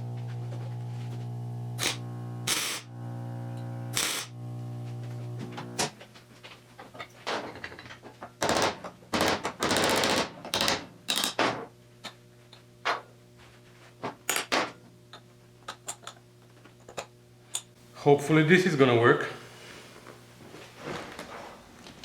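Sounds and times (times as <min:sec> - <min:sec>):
faint steady hum: 0:00.0 - 0:07.1
tools clicking and knocking: 0:07.5 - 0:12.2.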